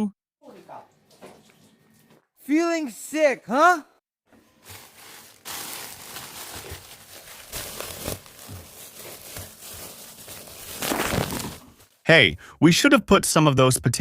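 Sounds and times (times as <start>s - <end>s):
crinkling and rustling: 4.3s - 12.0s.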